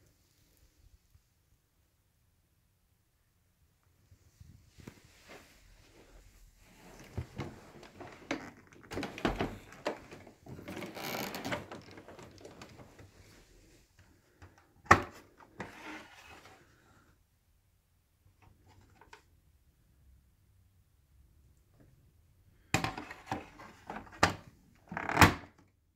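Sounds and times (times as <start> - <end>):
objects being handled: 6.6 - 13.4.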